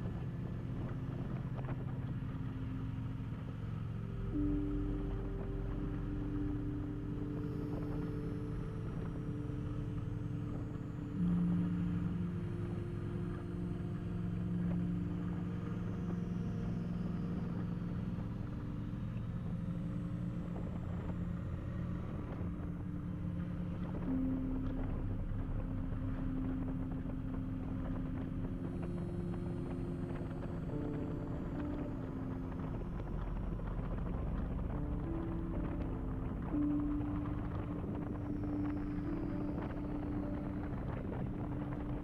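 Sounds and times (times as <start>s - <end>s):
motorcycle engine rumble: 0.0s - 16.4s, 17.3s - 42.0s.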